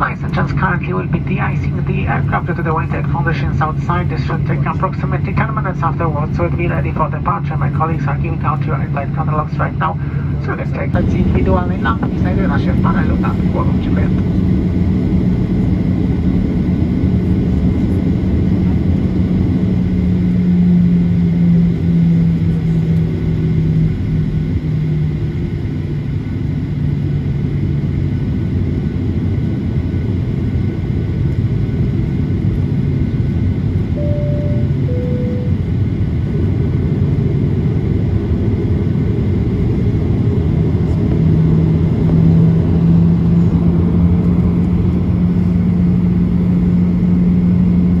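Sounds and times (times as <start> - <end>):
aircraft cabin rumble and drone: 0.0 - 48.0
two-note cabin chime: 34.0 - 35.8.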